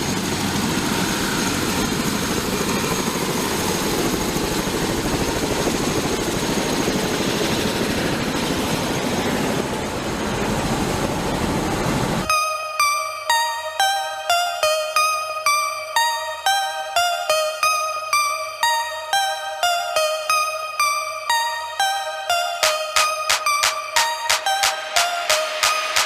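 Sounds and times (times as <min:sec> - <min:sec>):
helicopter rotor and turbine: 0:00.0 - 0:12.9, 0:22.5 - 0:26.0.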